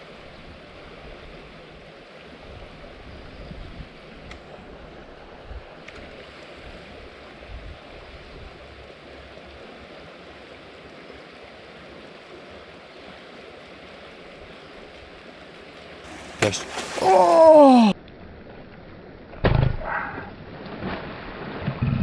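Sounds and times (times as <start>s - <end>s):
creek water flowing: 16.1s - 18.0s.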